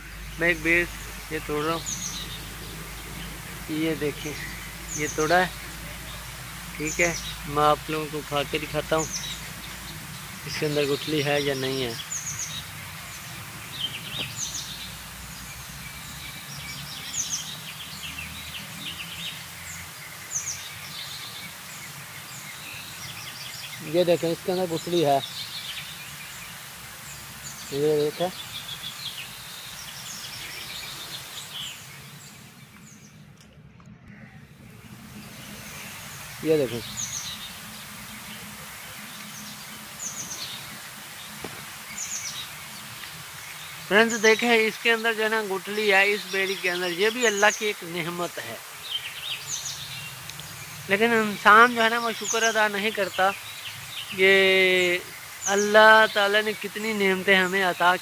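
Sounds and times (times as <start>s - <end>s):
steady low hum: 0.0s - 11.9s, 30.3s - 43.4s
small birds chirping: 0.0s - 58.0s.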